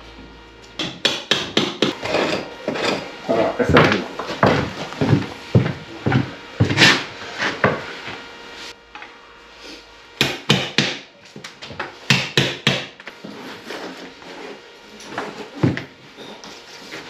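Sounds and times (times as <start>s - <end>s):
hammer and chisel striking wall: 0.8s - 3.0s, 10.2s - 11.1s, 12.1s - 13.0s.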